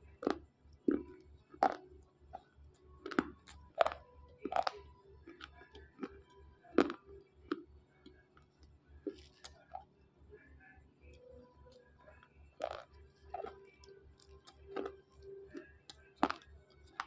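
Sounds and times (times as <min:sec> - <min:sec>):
sharp crunches of chewing: 0:00.0 - 0:07.6, 0:08.4 - 0:09.9, 0:12.5 - 0:17.0.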